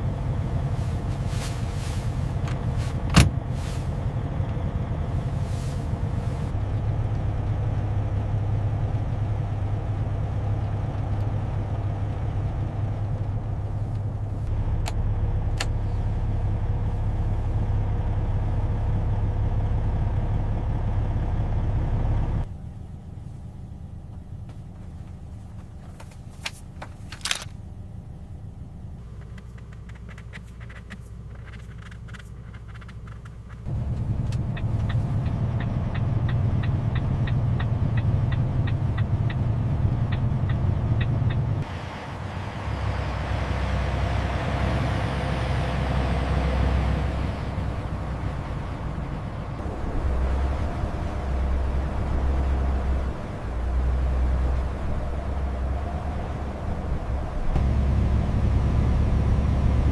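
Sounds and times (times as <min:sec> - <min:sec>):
truck engine humming: 0:00.0 - 0:59.9
sharp clicks: 0:29.0 - 0:33.7.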